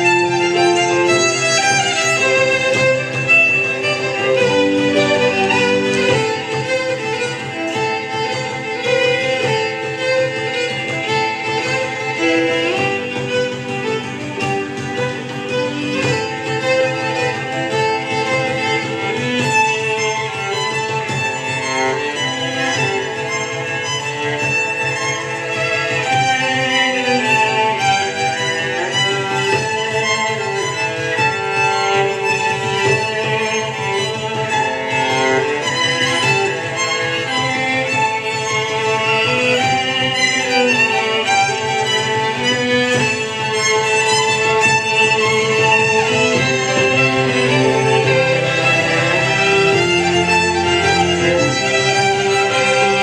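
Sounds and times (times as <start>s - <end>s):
bowed string ensemble: 0.0s - 53.0s
lead violin melody: 0.0s - 53.0s
low pulsing beat: 0.0s - 53.0s.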